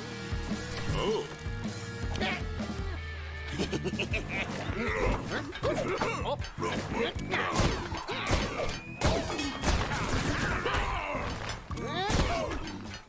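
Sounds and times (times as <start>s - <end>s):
background music: 0.0s - 13.0s
cartoon hits and crashes: 7.5s - 12.7s.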